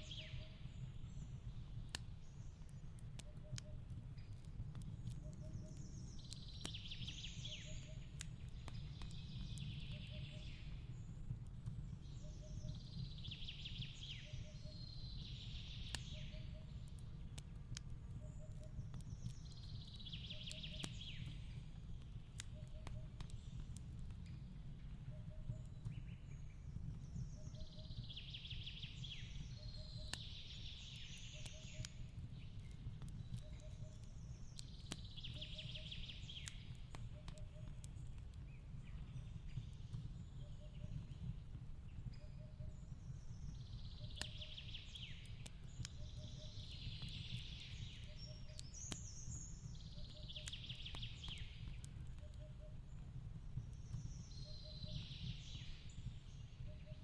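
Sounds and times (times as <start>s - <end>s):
songbird singing: 0.0s - 57.0s
fireplace crackling: 15.4s - 42.1s.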